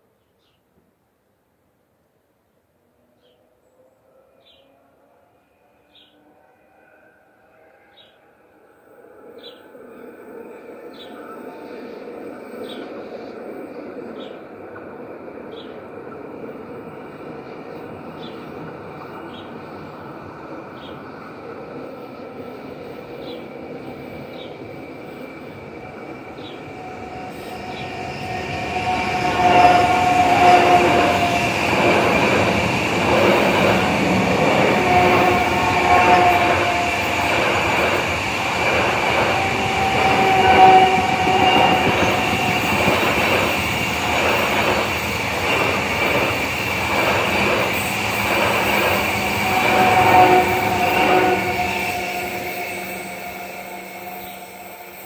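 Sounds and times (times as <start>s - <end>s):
train high whine: 3.0s - 55.0s
train wheels clacking: 26.3s - 55.0s.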